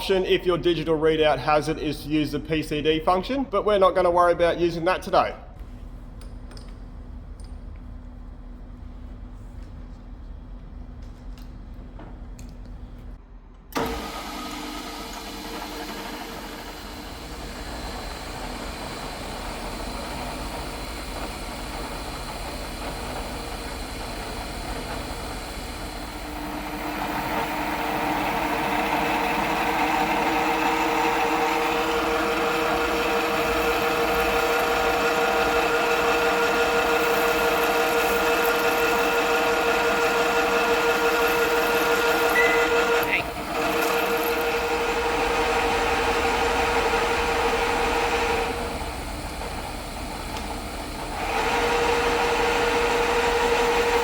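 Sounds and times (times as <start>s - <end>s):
milling machine motor hum: 13.7s - 54.0s.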